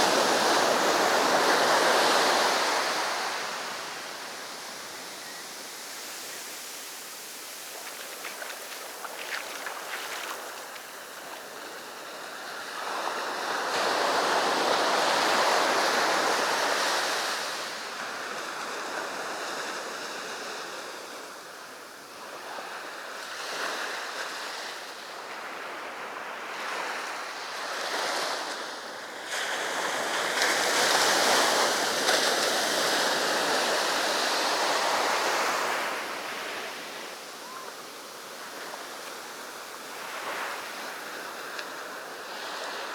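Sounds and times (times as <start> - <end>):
sea waves breaking on beach: 0.0 - 18.6, 27.9 - 42.9.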